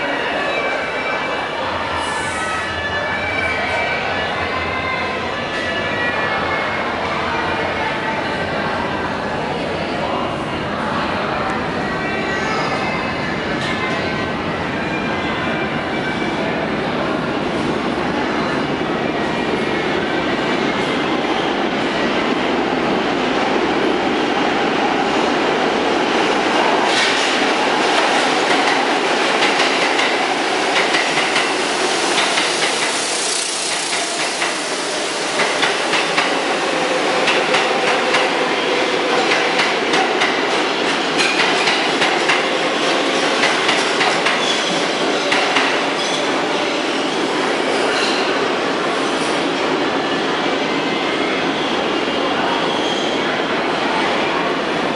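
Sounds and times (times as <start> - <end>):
train wheels rumbling on rail: 15.6 - 54.9.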